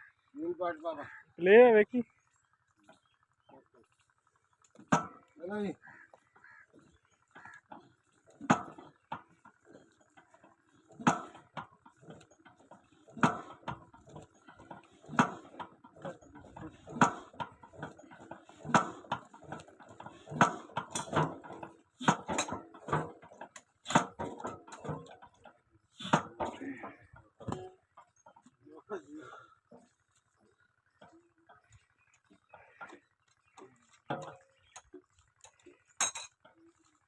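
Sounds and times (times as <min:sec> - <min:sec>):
sharp metal knocks: 0:04.8 - 0:05.3, 0:07.7 - 0:09.4, 0:10.9 - 0:25.4.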